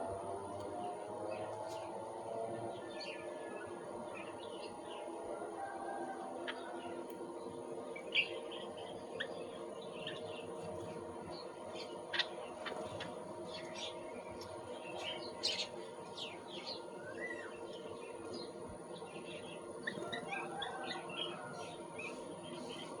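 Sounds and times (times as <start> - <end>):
steady low hum: 0.0 - 23.0
small birds chirping: 6.4 - 23.0.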